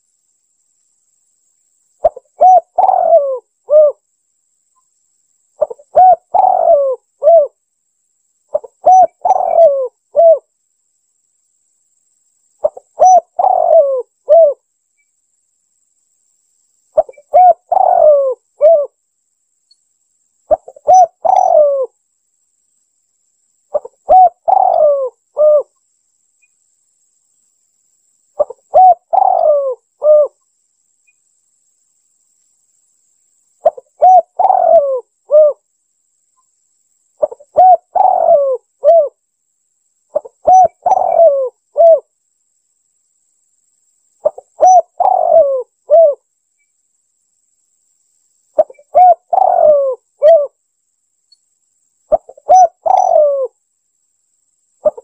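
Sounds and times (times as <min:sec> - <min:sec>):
dove cooing: 0:02.0 - 0:04.0, 0:05.6 - 0:07.6, 0:08.5 - 0:10.5, 0:12.6 - 0:14.6, 0:17.0 - 0:19.0, 0:20.5 - 0:21.9, 0:23.7 - 0:25.7, 0:28.4 - 0:30.4, 0:33.6 - 0:35.6, 0:37.2 - 0:39.2, 0:40.1 - 0:42.1, 0:44.2 - 0:46.2, 0:48.6 - 0:50.6, 0:52.1 - 0:53.6.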